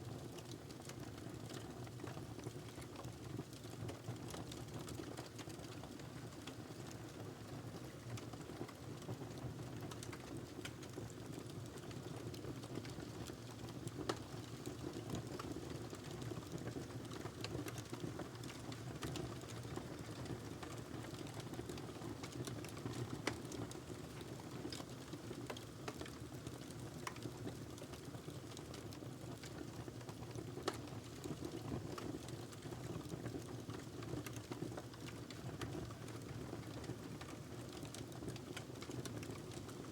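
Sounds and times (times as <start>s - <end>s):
wood fire crackling: 9.8s - 39.9s.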